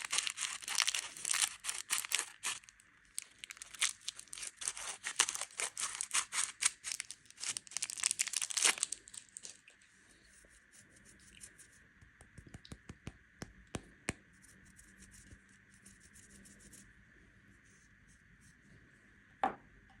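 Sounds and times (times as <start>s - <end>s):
plastic wrapper crinkling and tearing: 0.0s - 9.7s.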